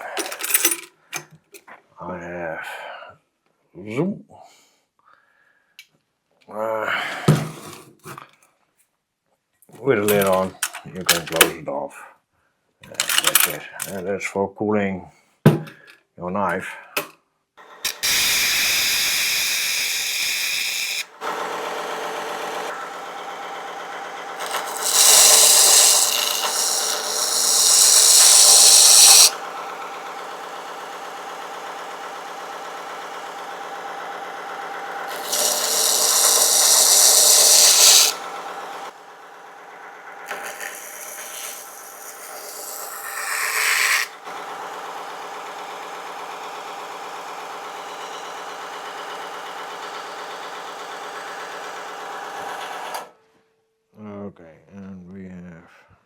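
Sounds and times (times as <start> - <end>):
metal grinding on sander belt: 10.0 - 11.4, 17.6 - 53.1
belt sander motor hum: 17.6 - 53.1.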